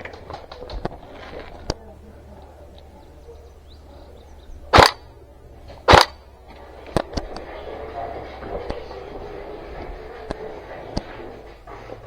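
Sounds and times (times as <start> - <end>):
airsoft gun shots: 4.7 - 5.1, 5.8 - 6.2
sharp clicks: 4.8 - 5.0, 5.7 - 6.2.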